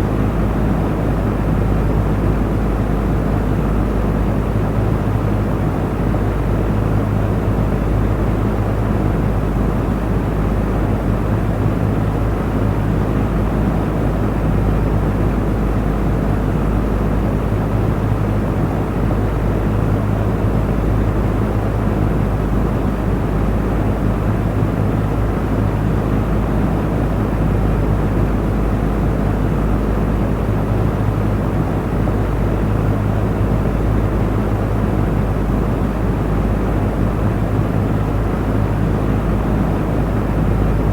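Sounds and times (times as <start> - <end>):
electric fan running: 16.0 - 40.9.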